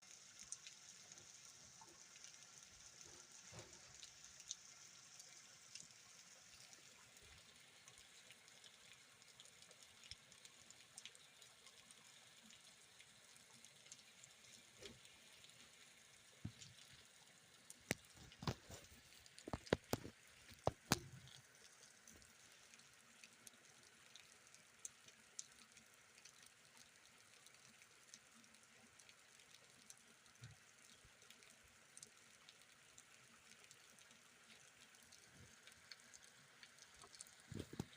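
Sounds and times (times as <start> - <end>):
light rain: 0.0 - 37.9
drops tapping and dripping: 16.4 - 17.0, 17.7 - 21.4, 35.2 - 37.9.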